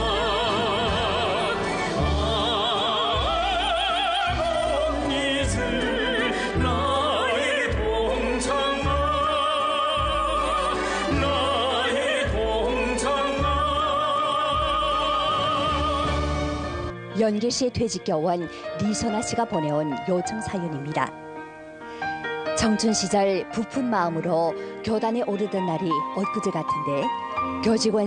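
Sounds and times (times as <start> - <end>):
operatic singing: 0.0 - 16.9
steady bass accompaniment: 0.0 - 17.3.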